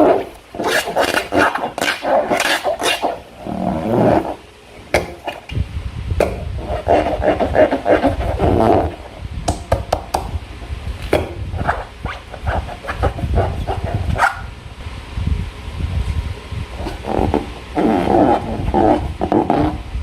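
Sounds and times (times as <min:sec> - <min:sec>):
rubbing noise: 0:00.0 - 0:04.4, 0:06.2 - 0:09.2, 0:11.2 - 0:14.5, 0:16.8 - 0:20.0.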